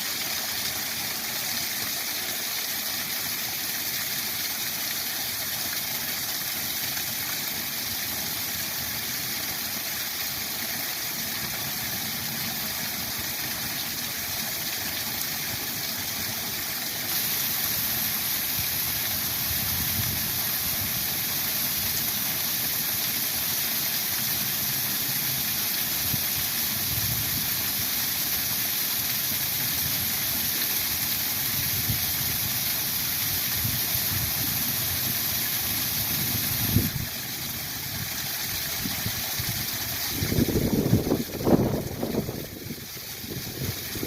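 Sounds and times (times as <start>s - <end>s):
small waterfall rushing: 0.0s - 44.0s
wind buffeting microphone: 40.1s - 44.0s.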